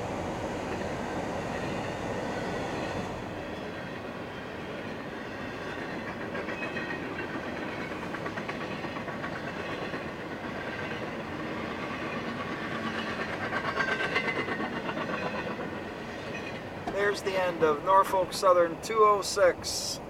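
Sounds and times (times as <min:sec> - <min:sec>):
freight train wheels clicking: 0:05.6 - 0:19.5.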